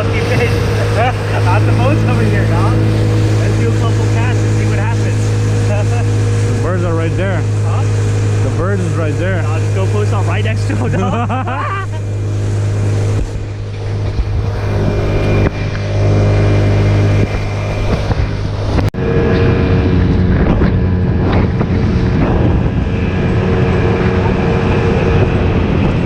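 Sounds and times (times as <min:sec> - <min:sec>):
boat motor running: 0:00.0 - 0:26.0
water noise: 0:00.0 - 0:26.0
wind buffeting microphone: 0:00.0 - 0:26.0.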